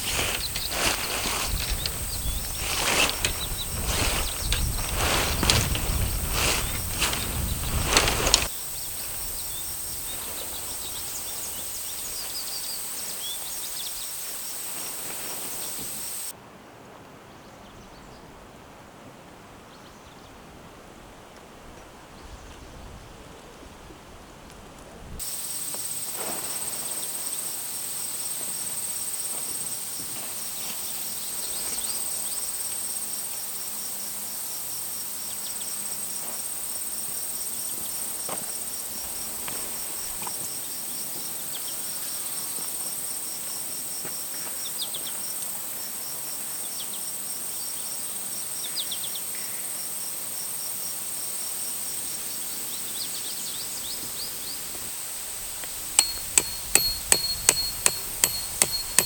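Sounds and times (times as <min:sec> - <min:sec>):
faint hiss: 0:00.0 - 0:16.3, 0:25.2 - 0:43.9
short chirping calls: 0:55.8 - 0:59.0
rapid pulsing chirp: 0:56.0 - 0:59.0.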